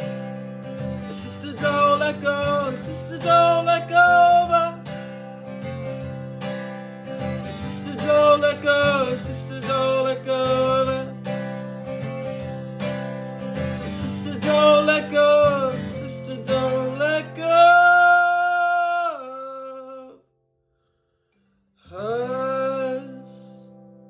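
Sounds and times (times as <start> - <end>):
acoustic guitar: 0.0 - 24.0
person singing: 1.0 - 4.9, 7.4 - 11.2, 13.8 - 20.2, 21.9 - 23.7.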